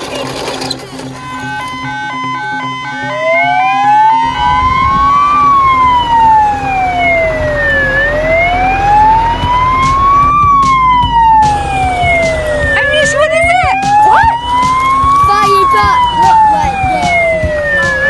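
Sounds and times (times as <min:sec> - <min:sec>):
low engine rumble: 0:00.0 - 0:18.0
fire engine siren wailing: 0:01.0 - 0:18.0.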